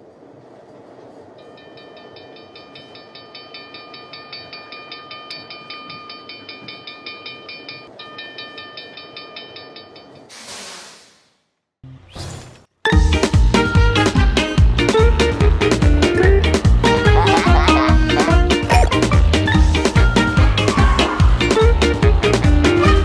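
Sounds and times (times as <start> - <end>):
rhythmic clatter with ringing tones: 1.4 - 10.3
steam hiss: 10.3 - 11.5
cartoon train rumble: 15.0 - 19.4.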